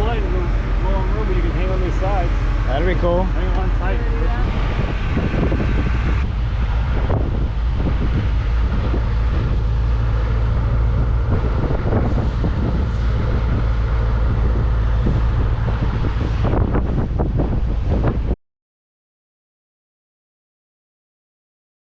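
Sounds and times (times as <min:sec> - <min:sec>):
vehicle low rumble: 0:00.0 - 0:18.4
wind buffeting microphone: 0:00.0 - 0:18.4.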